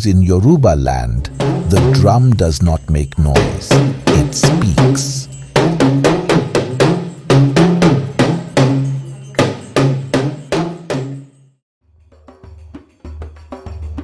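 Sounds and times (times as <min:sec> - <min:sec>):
talking drum strokes: 0:01.2 - 0:11.3.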